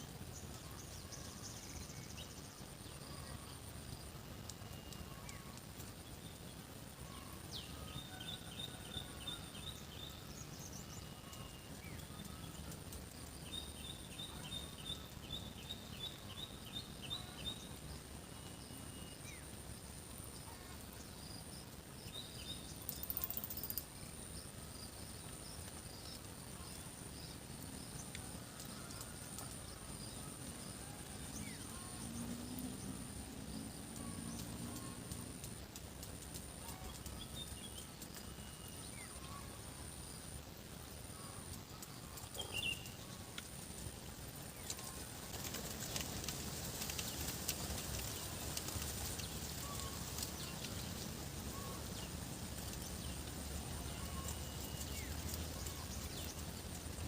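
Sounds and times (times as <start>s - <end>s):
birds singing trills: 4.4s - 19.5s, 41.1s - 43.4s, 44.5s - 56.8s
high insect drone: 6.9s - 57.0s.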